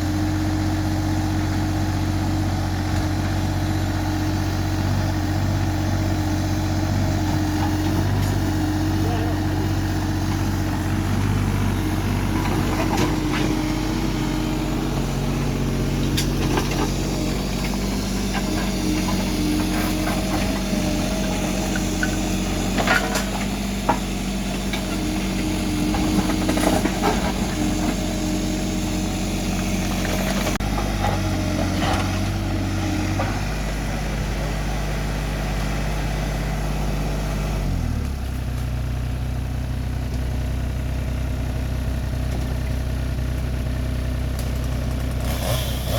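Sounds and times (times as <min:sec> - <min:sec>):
vehicle engine running: 0:00.0 - 0:45.9.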